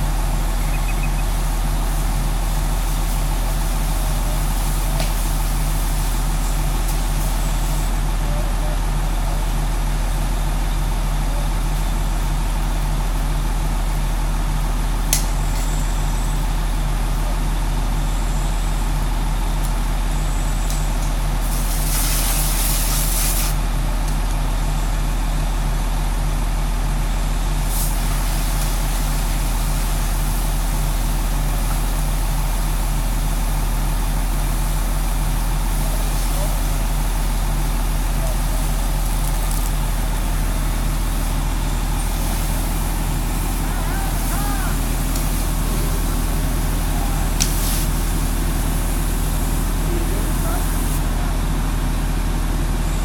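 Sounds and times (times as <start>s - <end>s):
air hiss: 0.0s - 8.1s, 21.4s - 23.6s, 27.6s - 51.1s
large diesel engine droning: 0.0s - 21.9s, 22.8s - 53.0s.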